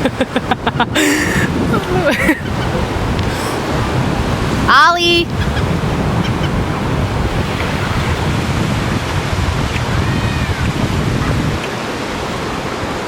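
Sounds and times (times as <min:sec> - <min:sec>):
ocean surf washing ashore: 0:00.0 - 0:13.0
wind buffeting microphone: 0:00.0 - 0:13.0.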